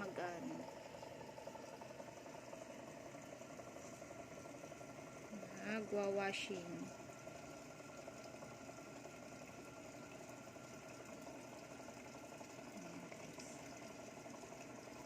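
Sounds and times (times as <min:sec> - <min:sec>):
low machine hum: 0:00.0 - 0:15.0
water rushing in washing machine: 0:00.0 - 0:15.0.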